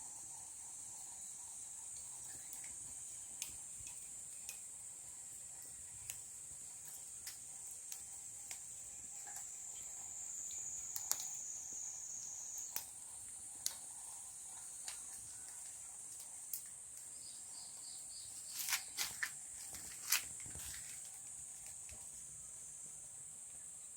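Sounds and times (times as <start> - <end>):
insects chirping: 0.0 - 23.9
sharp clicks and snaps: 3.4 - 4.6, 10.5 - 11.4, 12.6 - 12.9, 13.6 - 13.8, 14.8 - 17.1.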